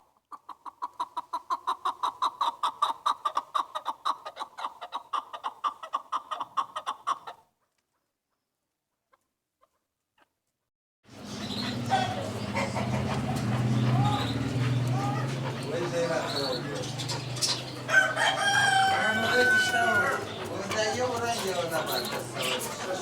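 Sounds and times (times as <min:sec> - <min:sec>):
partridge clucking call: 0:11.2 - 0:23.0.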